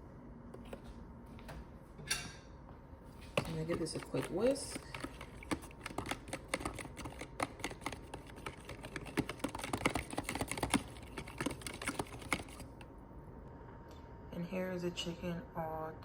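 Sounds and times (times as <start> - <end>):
whisk clicking against bowl: 3.4 - 12.8.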